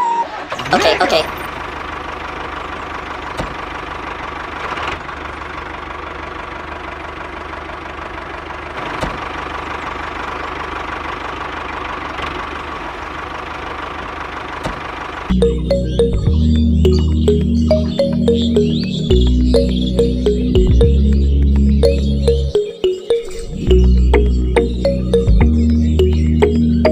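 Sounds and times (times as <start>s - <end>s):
loud music with heavy bass: 15.4s - 26.9s.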